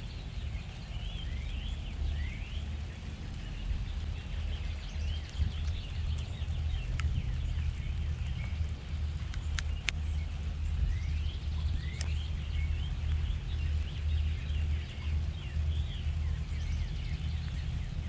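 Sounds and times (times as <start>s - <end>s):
small birds chirping: 0.0s - 18.0s
steady low rumble: 0.0s - 18.0s
sharp ticks: 2.7s - 10.6s, 11.6s - 18.0s.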